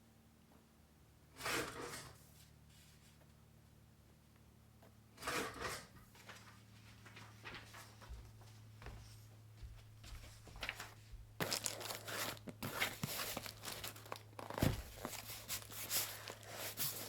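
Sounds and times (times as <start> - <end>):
paper or plastic rustling: 6.2 - 8.2, 10.3 - 17.0.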